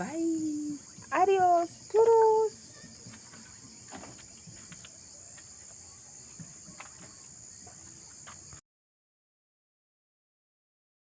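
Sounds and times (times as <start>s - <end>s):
crickets chirring: 0.0s - 8.6s.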